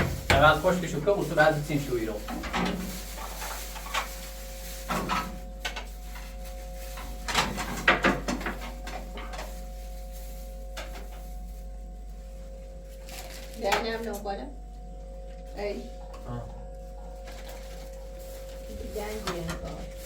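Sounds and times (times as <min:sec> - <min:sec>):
hard objects knocking and clattering: 0:00.0 - 0:00.6
faint steady hum: 0:00.0 - 0:20.0.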